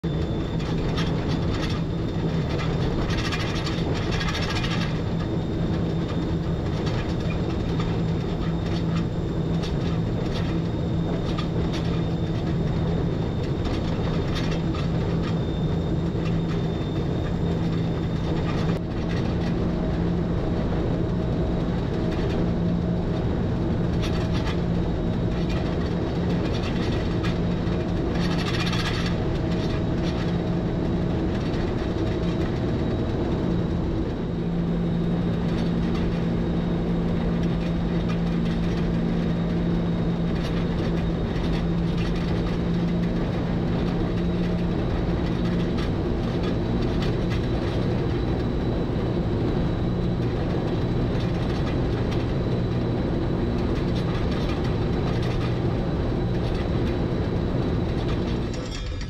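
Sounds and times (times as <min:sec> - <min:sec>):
electric train running hum: 0:00.0 - 0:59.0.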